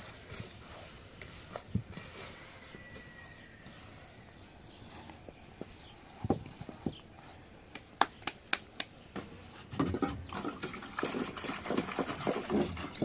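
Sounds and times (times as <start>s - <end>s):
rustling and clatter: 9.6s - 13.0s.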